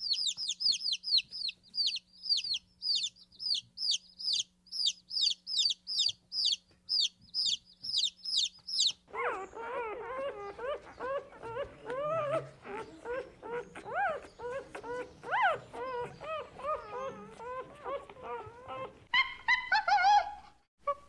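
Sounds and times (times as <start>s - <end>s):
dog whimpering and whining: 9.1s - 21.0s.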